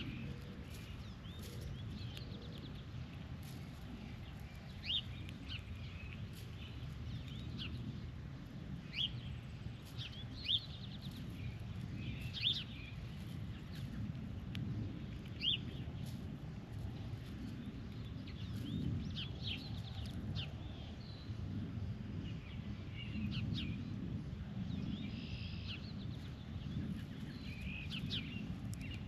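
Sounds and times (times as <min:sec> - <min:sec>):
birds chirping: 0:00.0 - 0:08.2, 0:08.8 - 0:14.4, 0:15.1 - 0:16.2, 0:24.8 - 0:29.0
steady low rumble: 0:00.0 - 0:29.0.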